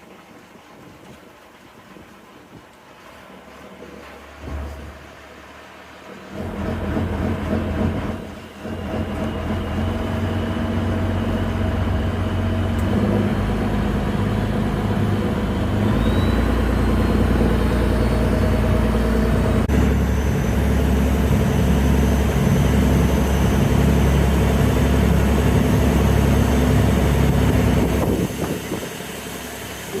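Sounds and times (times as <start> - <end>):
boat engine running: 0.7 - 30.0.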